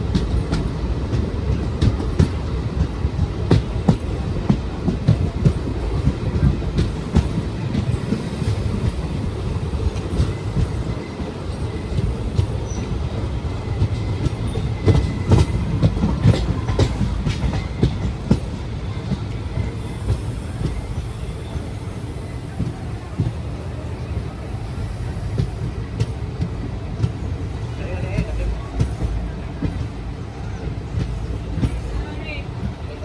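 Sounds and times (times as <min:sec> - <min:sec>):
wheels clacking over rail joints: 0:00.0 - 0:24.4
train rumble: 0:00.0 - 0:33.0.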